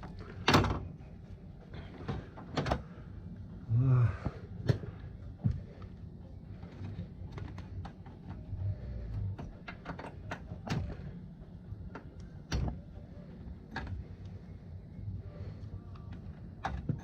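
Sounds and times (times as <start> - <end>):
low steady hum: 0.0 - 17.0
tools clicking and knocking: 9.2 - 11.0, 16.0 - 17.0.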